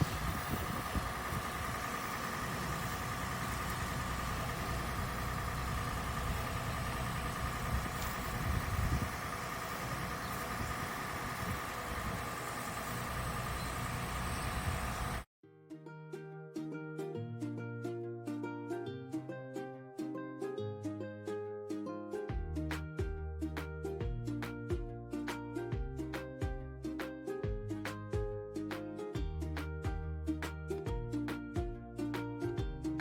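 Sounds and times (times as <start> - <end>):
car engine idling: 0.0 - 15.3.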